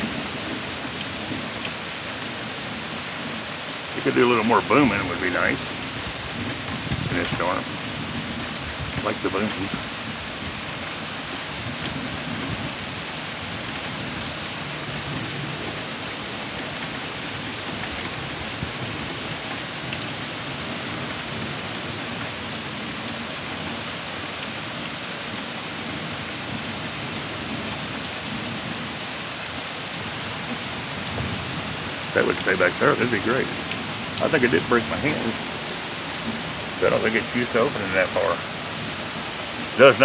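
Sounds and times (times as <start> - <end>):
steady rain falling: 0.0 - 40.0
thunder rumbling: 2.3 - 10.8, 30.0 - 40.0.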